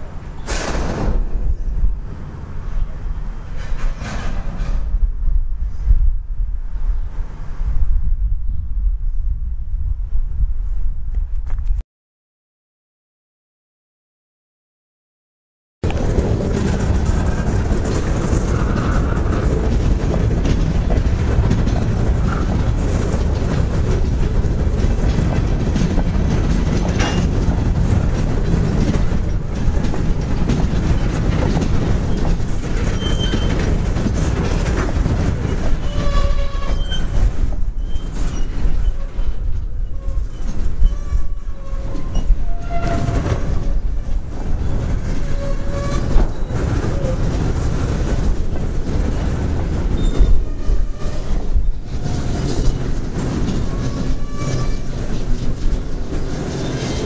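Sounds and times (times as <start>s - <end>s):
train wheels rumbling and clattering: 0.0s - 9.1s, 15.8s - 57.0s
high wheel squeals: 32.0s - 33.7s, 35.8s - 43.8s, 49.9s - 52.7s, 53.6s - 55.0s.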